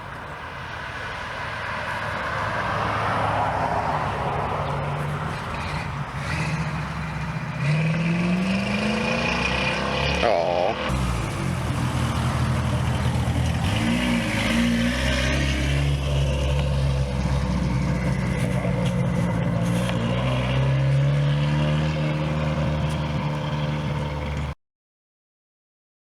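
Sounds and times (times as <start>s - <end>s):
car engine idling: 4.4s - 14.5s, 15.8s - 20.7s.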